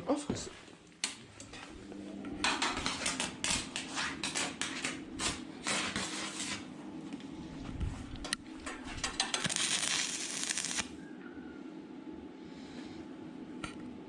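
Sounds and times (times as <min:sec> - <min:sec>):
faint low hum: 0:10.9 - 0:14.0.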